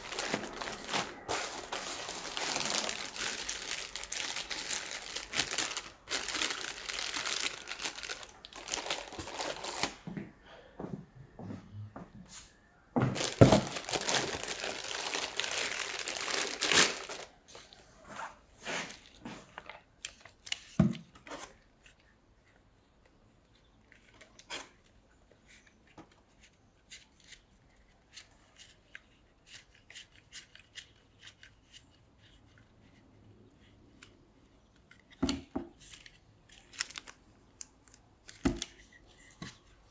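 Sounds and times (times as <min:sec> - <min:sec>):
wrapping tearing and crinkling: 0:00.0 - 0:10.0, 0:13.1 - 0:17.8, 0:35.8 - 0:38.8.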